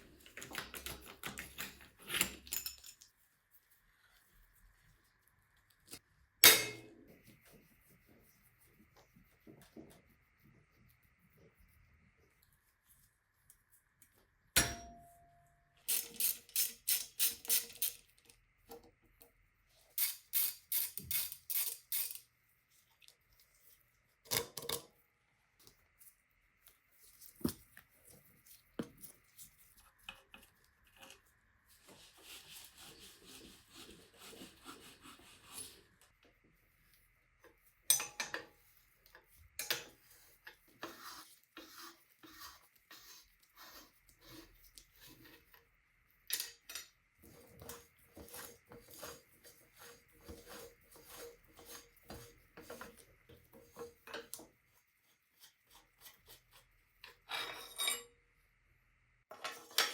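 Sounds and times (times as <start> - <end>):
metallic knock with ringing: 14.6 - 15.3.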